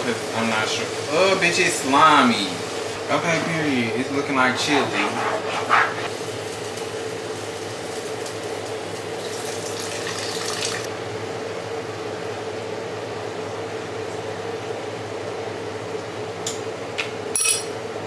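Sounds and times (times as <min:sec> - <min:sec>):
hissing splashing water: 0:00.0 - 0:10.9
kitchen appliance hum: 0:00.0 - 0:18.0.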